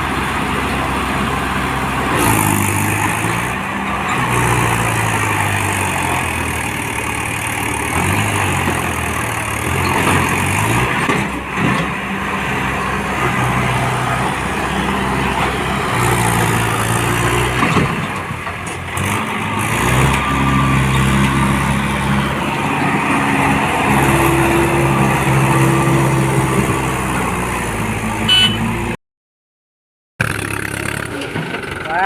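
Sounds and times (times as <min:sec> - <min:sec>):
tractor diesel engines labouring: 0:00.0 - 0:29.0, 0:30.2 - 0:32.0.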